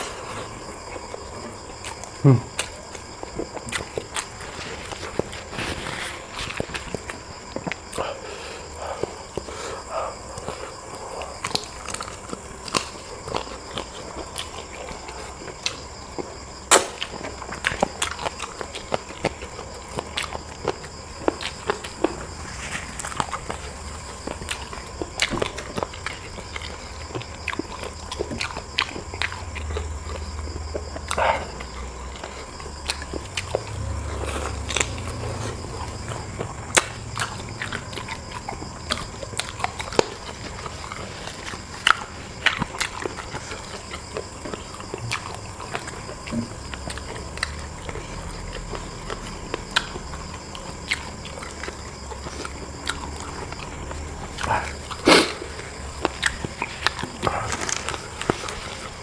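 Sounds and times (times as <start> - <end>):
person chewing food: 0.0 - 59.0
steady low hum: 0.0 - 59.0
wet mouth clicks and smacks: 16.7 - 19.1.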